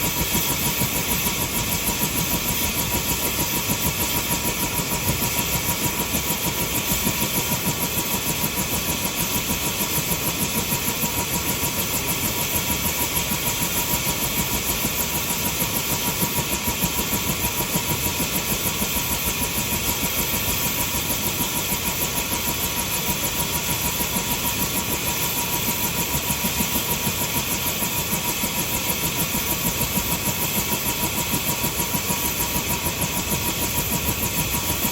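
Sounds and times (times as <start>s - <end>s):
helicopter engine running: 0.0s - 34.9s.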